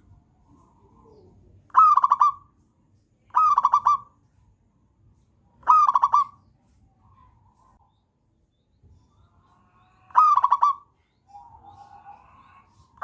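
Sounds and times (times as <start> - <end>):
faint soft coo: 0.4 - 1.6
dove stuttering coos: 10.1 - 10.8.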